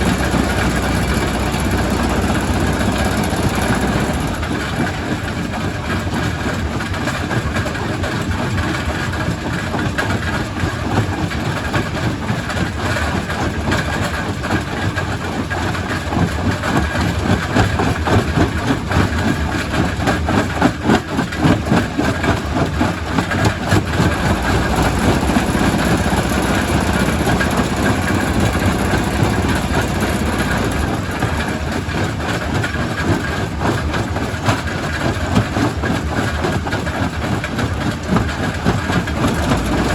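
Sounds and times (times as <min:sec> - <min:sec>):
rock crusher running: 0:00.0 - 0:07.0, 0:21.3 - 0:39.9.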